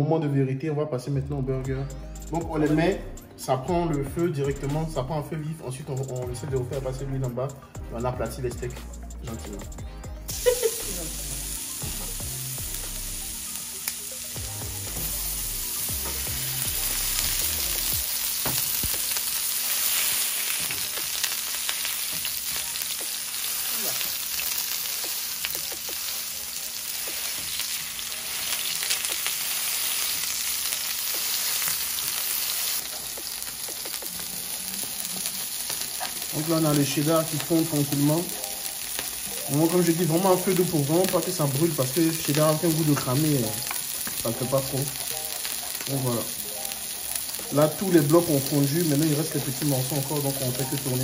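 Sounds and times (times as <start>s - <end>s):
patties sizzling in frying pan: 10.3s - 51.0s.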